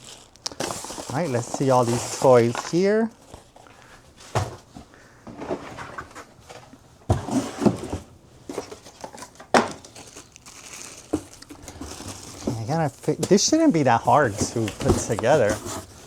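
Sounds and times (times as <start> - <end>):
plastic packaging crinkling: 0.0 - 3.6, 8.6 - 16.0.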